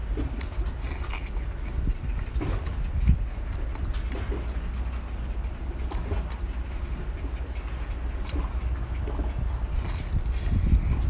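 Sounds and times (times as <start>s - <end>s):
wind rumble on microphone: 0.0s - 11.0s
close chewing and sucking: 0.2s - 4.5s, 9.2s - 11.0s
small wet mouth clicks: 0.4s - 3.9s, 9.7s - 11.0s.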